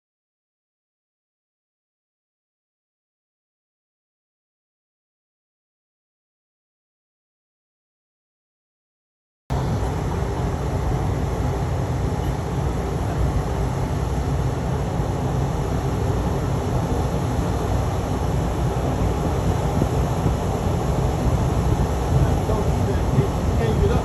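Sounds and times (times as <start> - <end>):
vehicle engine and road noise: 9.5 - 24.0.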